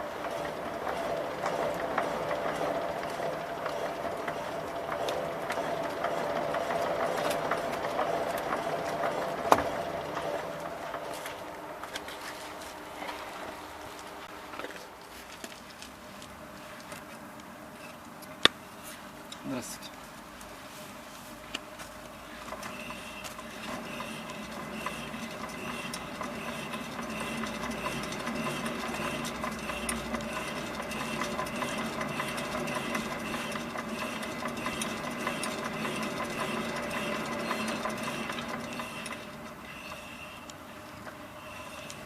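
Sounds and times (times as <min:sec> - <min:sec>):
mechanical hum with pulsing: 0:00.0 - 0:19.2, 0:20.6 - 0:42.0
car engine running: 0:22.3 - 0:40.3.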